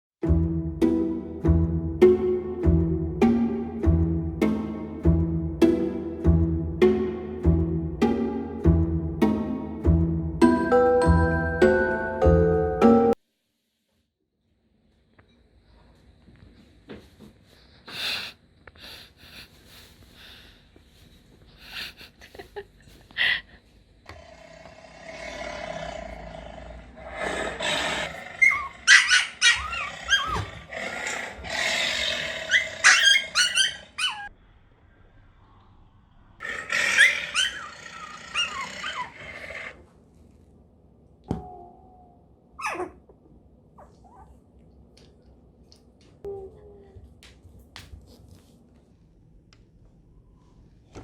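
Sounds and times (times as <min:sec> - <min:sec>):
lion roars: 0:24.1 - 0:28.9, 0:29.8 - 0:32.9, 0:36.4 - 0:39.8
high squeaky cries: 0:28.4 - 0:30.4, 0:32.5 - 0:34.3, 0:36.8 - 0:39.4.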